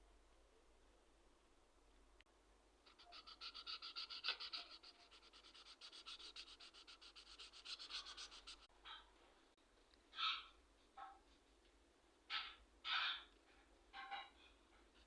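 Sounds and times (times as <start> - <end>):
marker squeaking on paper: 2.9 - 8.7.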